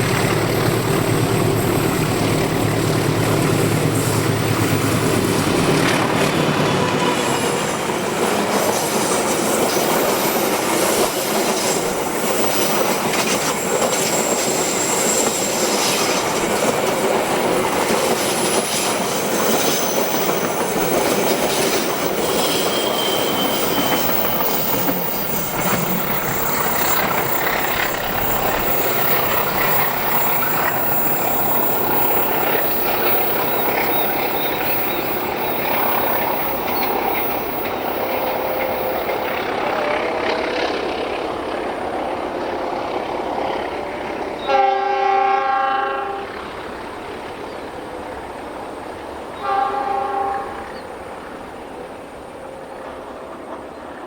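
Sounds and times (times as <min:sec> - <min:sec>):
train wheels rolling on rails: 0:00.0 - 0:44.7
high wheel squeals: 0:08.5 - 0:39.5.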